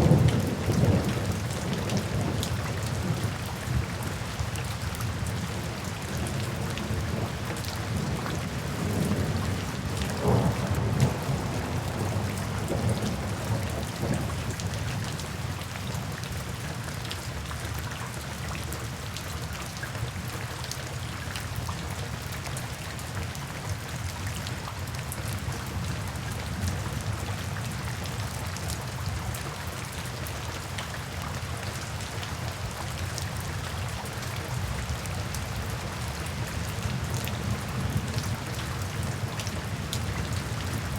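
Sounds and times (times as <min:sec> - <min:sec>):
low rumble of thunder: 0:00.0 - 0:16.1, 0:34.5 - 0:40.9
steady rain falling: 0:00.0 - 0:40.9.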